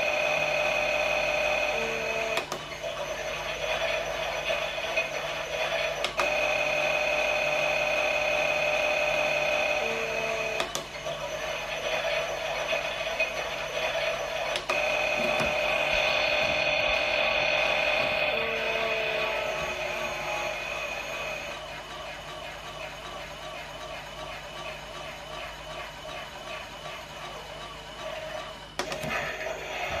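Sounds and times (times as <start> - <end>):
toy motor whirring: 0.0 - 21.6.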